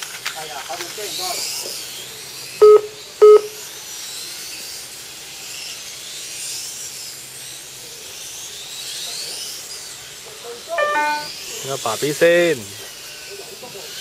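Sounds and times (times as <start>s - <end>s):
electronic beep: 10.8s - 11.3s.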